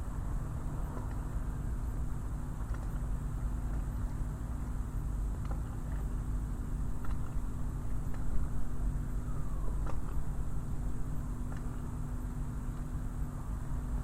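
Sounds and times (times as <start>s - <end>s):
constant hum: 0.0s - 14.0s
low engine rumble: 0.0s - 14.0s
faint clicks and knocks: 0.8s - 1.3s, 2.5s - 8.7s, 9.7s - 11.9s.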